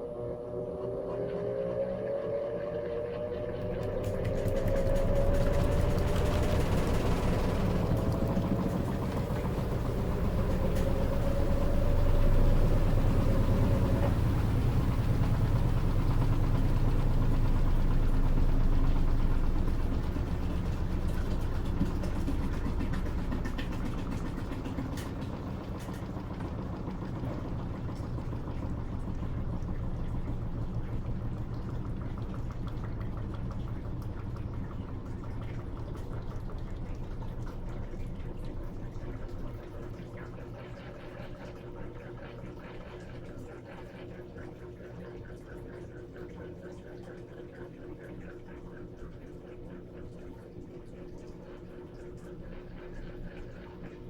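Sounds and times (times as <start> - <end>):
thin rising whine: 0.0 - 21.2
washing machine pump hum: 0.0 - 54.0.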